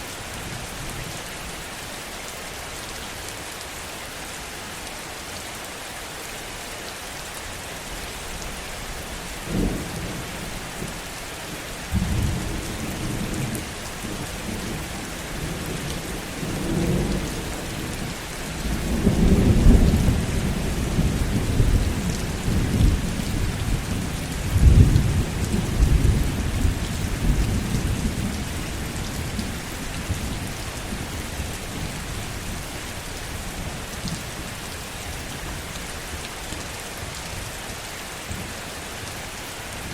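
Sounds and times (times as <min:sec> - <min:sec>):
heavy rain: 0:00.0 - 0:39.9
thunder crack and rumble: 0:15.4 - 0:29.5.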